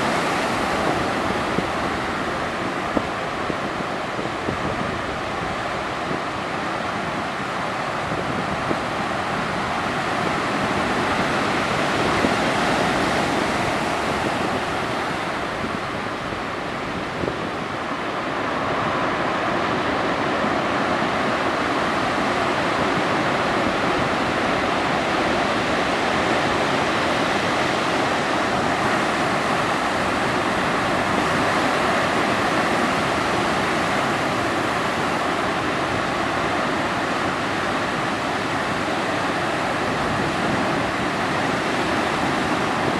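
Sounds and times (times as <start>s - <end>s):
ocean surf breaking: 0.0s - 42.9s.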